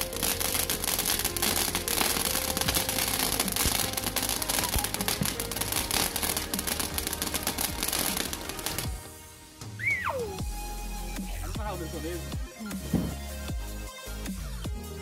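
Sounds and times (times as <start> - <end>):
firework fizzing and crackling: 0.0 - 10.6.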